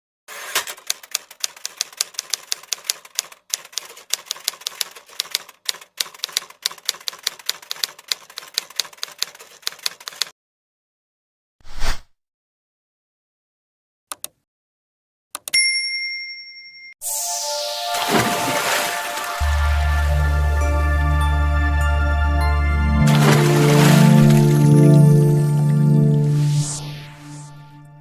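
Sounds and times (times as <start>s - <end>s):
rapid typewriter keystrokes: 0.4s - 10.3s.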